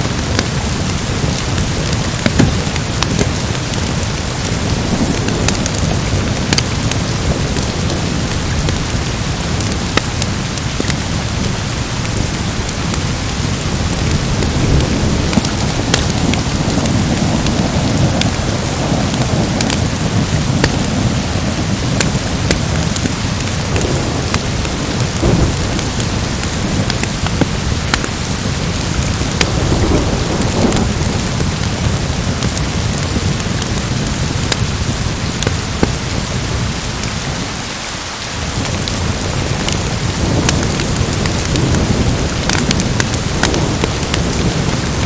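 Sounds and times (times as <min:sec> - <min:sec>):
low rolling thunder: 0:00.0 - 0:36.7, 0:38.6 - 0:45.0
heavy rain: 0:00.0 - 0:45.0.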